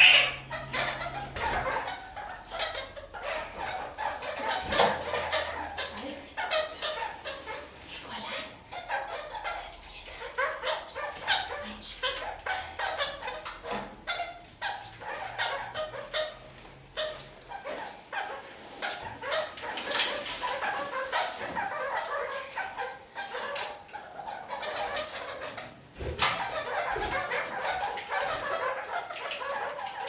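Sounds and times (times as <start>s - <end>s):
parakeets chattering and calling: 0.0s - 30.0s.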